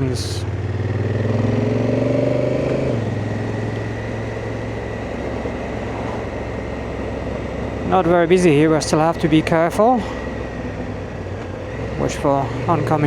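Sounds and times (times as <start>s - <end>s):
motorcycle engine running: 0.0s - 13.0s
rush of noise: 2.4s - 10.7s.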